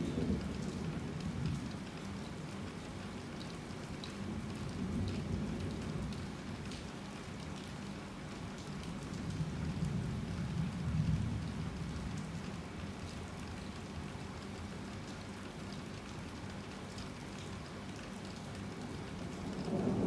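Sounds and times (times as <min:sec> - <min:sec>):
heavy rain falling: 0:18.3 - 0:20.0.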